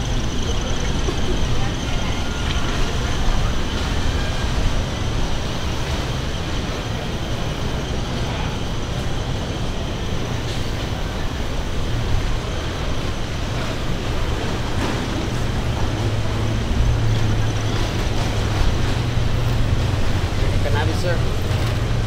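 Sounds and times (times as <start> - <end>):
large engine humming: 0.0 - 22.0
street noise: 0.0 - 22.0.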